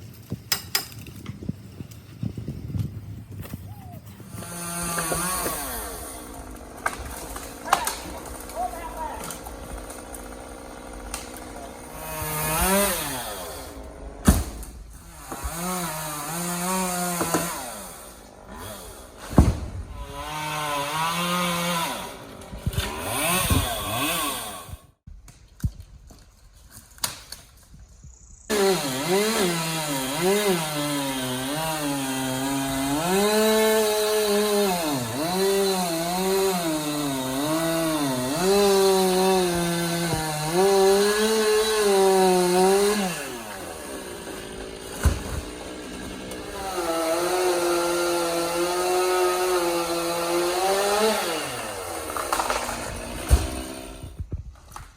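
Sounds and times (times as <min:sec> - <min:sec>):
chainsaw engine revving: 0:04.3 - 0:14.4, 0:15.0 - 0:24.9, 0:28.5 - 0:54.2
sharp thumps: 0:52.1 - 0:54.4.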